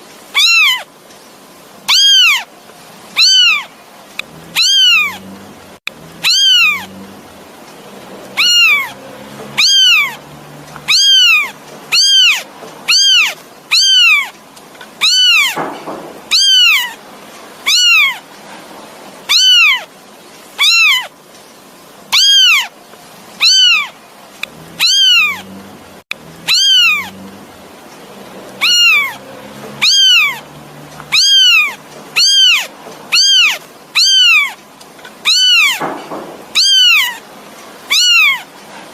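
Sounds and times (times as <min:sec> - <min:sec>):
kitten meowing: 0:00.3 - 0:00.9, 0:01.9 - 0:02.5, 0:03.2 - 0:03.7, 0:04.5 - 0:05.3, 0:06.2 - 0:07.0, 0:08.4 - 0:10.2, 0:10.8 - 0:14.4, 0:15.0 - 0:17.0, 0:17.6 - 0:18.2, 0:19.3 - 0:19.9, 0:20.6 - 0:21.1, 0:22.1 - 0:22.7, 0:23.4 - 0:23.9, 0:24.7 - 0:25.5, 0:26.4 - 0:27.2, 0:28.6 - 0:29.2, 0:29.8 - 0:34.6, 0:35.2 - 0:37.2, 0:37.9 - 0:38.5.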